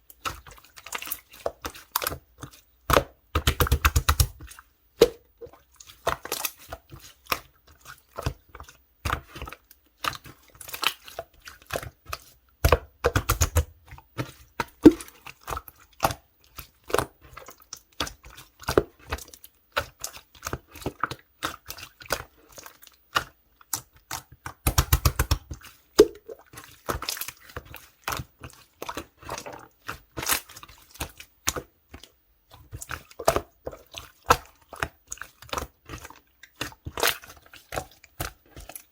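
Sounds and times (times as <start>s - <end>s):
slime squishing and popping: 14.7s - 15.2s, 24.1s - 27.2s.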